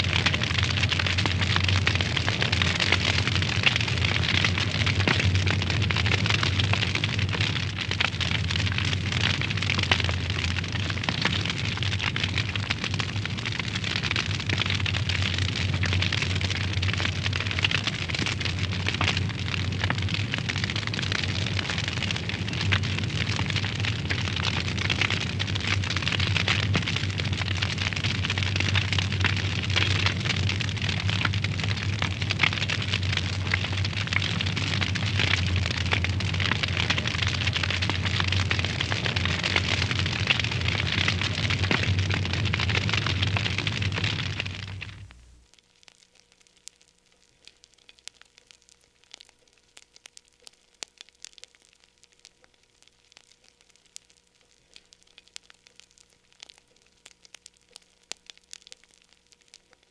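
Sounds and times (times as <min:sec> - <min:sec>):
wood fire crackling: 0:00.0 - 0:59.9
steady low hum: 0:21.1 - 0:45.4.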